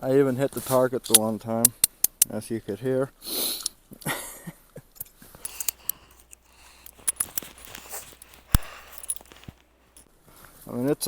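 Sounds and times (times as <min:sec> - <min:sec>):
revolver handling clicks: 0:05.4 - 0:10.0.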